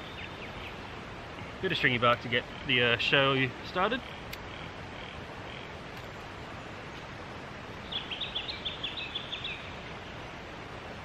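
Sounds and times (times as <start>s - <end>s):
bird chirping: 0.0s - 1.0s, 7.8s - 10.2s
river water flowing: 0.0s - 11.0s.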